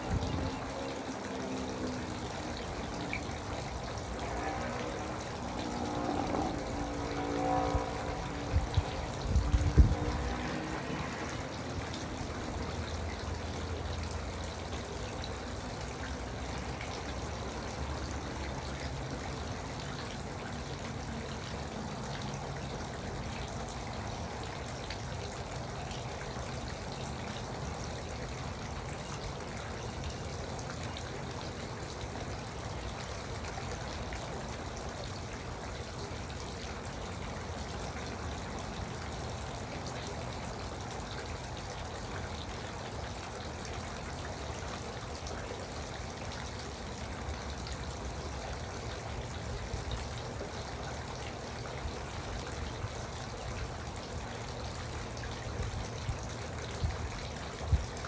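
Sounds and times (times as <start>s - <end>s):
fountain water splashing: 0.0s - 58.0s.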